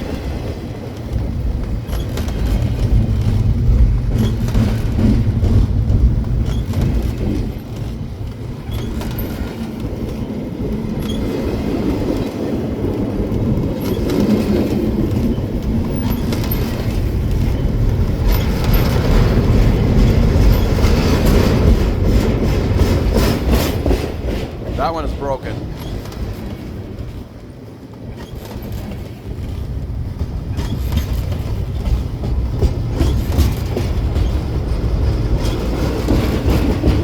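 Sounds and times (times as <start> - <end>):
freight train rumbling past: 0.0 - 37.0
wheels clattering on rail joints: 0.0 - 37.0.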